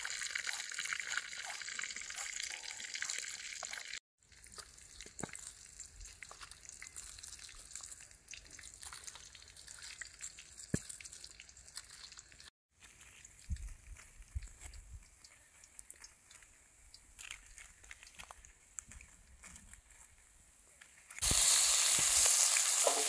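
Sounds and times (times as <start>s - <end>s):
food sizzling in hot oil: 0.0s - 4.0s, 21.2s - 23.0s
oil pops and crackles: 0.0s - 12.5s, 21.2s - 23.0s.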